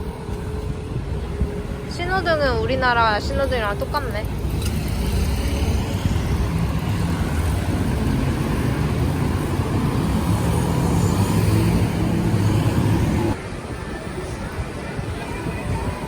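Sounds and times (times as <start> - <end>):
road traffic rumbling: 0.0 - 16.0
vehicle engine running close by: 4.3 - 13.4.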